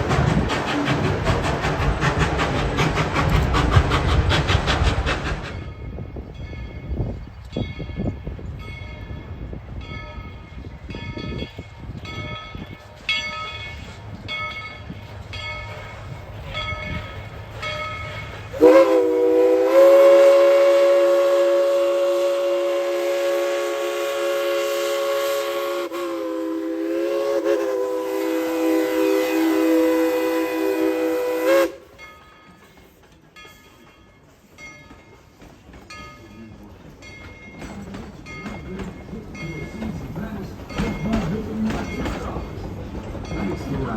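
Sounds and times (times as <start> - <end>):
locomotive bell ringing: 5.5 - 18.8, 31.9 - 43.9.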